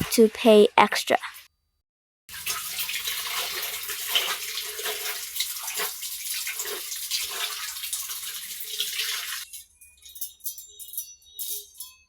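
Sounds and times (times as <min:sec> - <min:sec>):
water splashing in a basin: 0:02.3 - 0:09.5.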